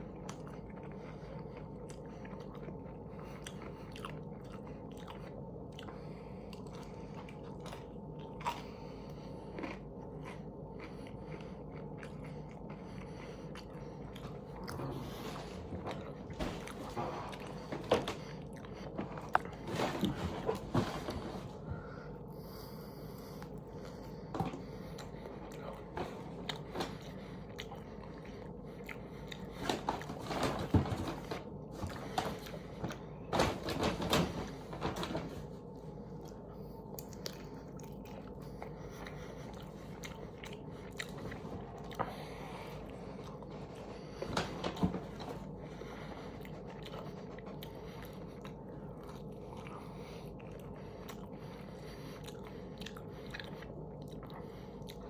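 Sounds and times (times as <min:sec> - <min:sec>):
chewing chicken wings with crunches: 0:00.0 - 0:20.2, 0:23.6 - 0:29.6, 0:36.1 - 0:43.5, 0:45.8 - 0:55.0
steady low hum: 0:00.0 - 0:55.0.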